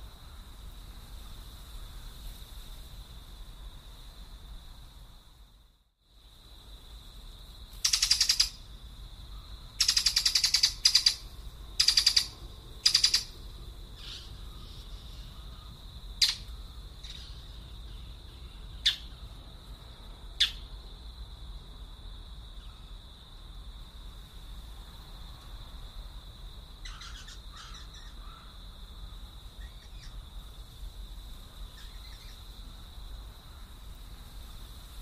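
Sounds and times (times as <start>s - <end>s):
birds making harsh raspy calls: 7.8s - 8.6s, 9.8s - 11.2s, 11.8s - 13.3s, 26.8s - 28.5s.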